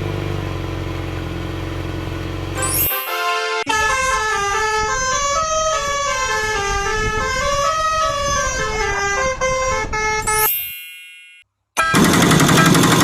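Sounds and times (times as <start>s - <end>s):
electronic beeping melody: 2.6s - 5.8s.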